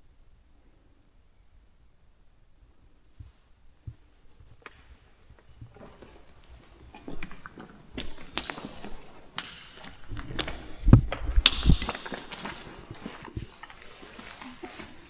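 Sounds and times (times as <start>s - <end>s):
heavy thumps: 3.9s - 15.0s
footsteps on rock: 4.6s - 15.0s.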